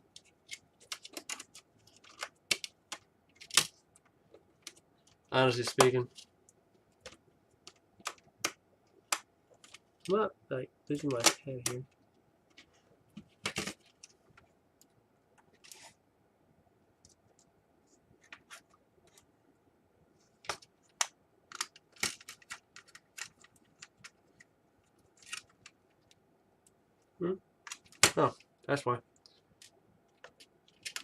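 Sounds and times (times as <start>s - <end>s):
small plastic parts clicking: 0.1s - 6.3s, 20.4s - 24.5s, 29.2s - 31.0s.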